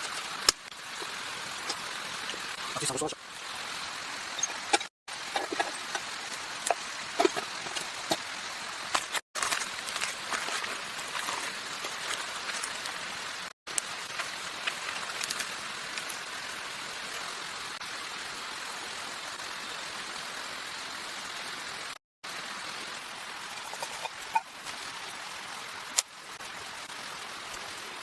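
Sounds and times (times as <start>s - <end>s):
rain hiss: 0.0s - 28.0s
raindrops ticking: 8.9s - 17.6s.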